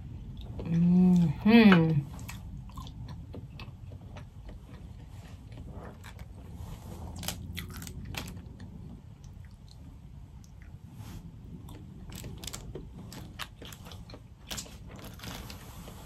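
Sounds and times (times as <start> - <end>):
chewing: 2.0 - 10.8, 11.6 - 16.0.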